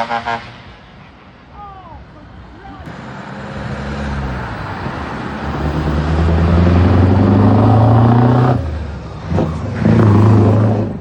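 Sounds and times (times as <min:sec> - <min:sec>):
heavy truck engine pulling away: 0:02.8 - 0:11.0.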